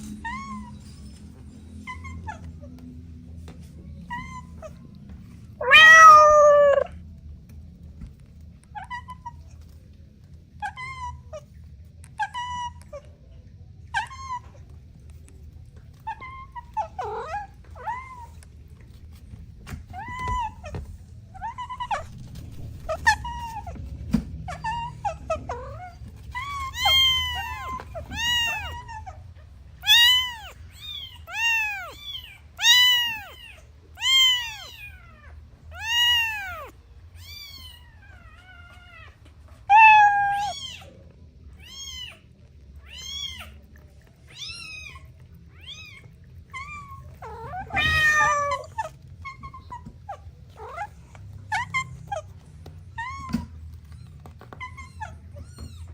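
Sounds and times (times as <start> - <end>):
kittens meowing: 5.5 - 7.0, 15.3 - 18.6, 19.8 - 55.9.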